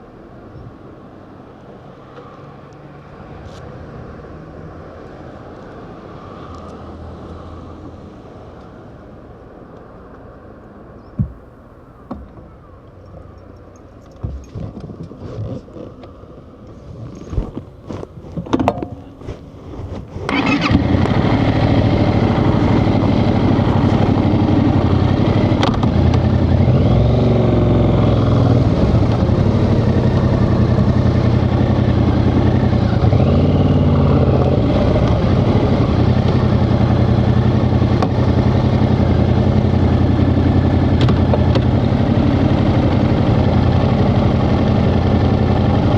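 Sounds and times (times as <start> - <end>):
motorcycle engine starting and idling: 20.2 - 45.9.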